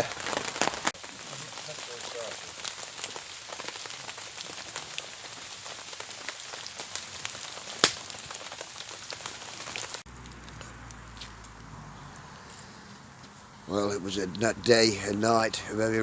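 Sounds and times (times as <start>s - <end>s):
heavy rain pattering on a tarp: 0.0s - 12.3s, 13.7s - 16.0s
sharp crack: 6.3s - 11.5s.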